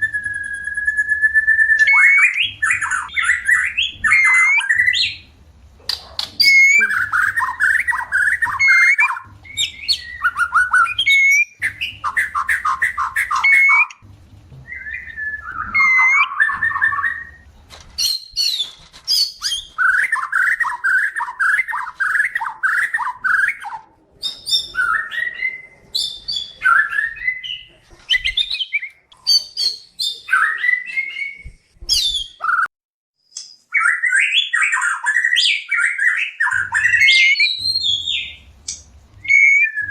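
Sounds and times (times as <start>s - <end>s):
high whistled bird notes: 0.0s - 5.3s, 6.4s - 14.0s, 14.6s - 17.4s, 18.0s - 32.7s, 33.3s - 39.9s
birds chattering calls: 1.6s - 14.0s.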